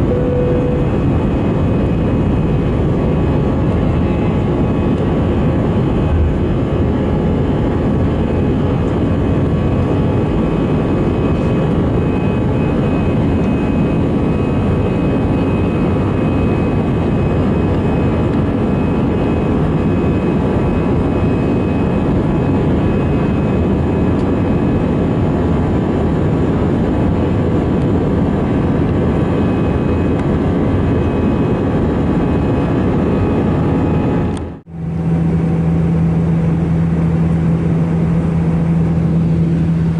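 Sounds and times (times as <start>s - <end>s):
faint whining tones: 0.0s - 25.3s
jet engine cabin rush: 0.0s - 39.9s.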